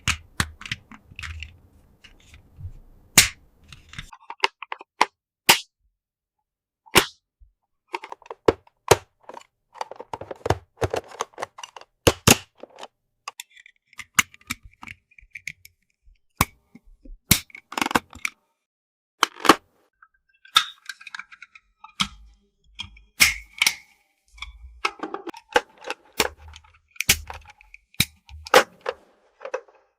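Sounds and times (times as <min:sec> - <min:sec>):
plastic toy pieces clicking: 0:09.2 - 0:15.7.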